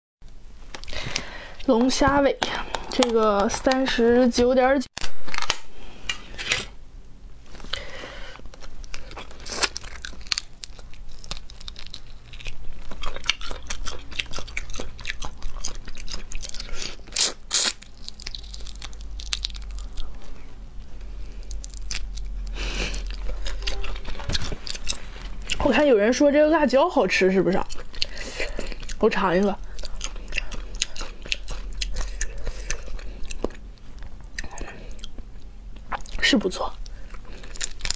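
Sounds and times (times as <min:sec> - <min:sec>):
chewing with crisp crunches: 0:07.5 - 0:26.2, 0:27.0 - 0:37.9.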